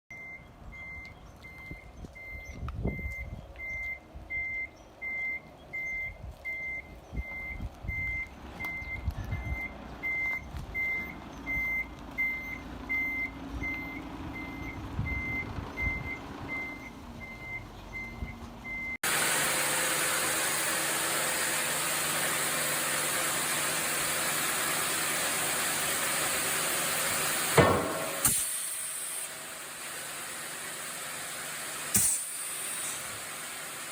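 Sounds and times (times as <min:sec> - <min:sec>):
reversing alarm beeping: 0:00.1 - 0:19.0
low engine rumble: 0:00.1 - 0:33.9
rushing machine noise: 0:19.0 - 0:33.9
knocks: 0:27.6 - 0:28.4
loud bang: 0:27.6 - 0:28.6.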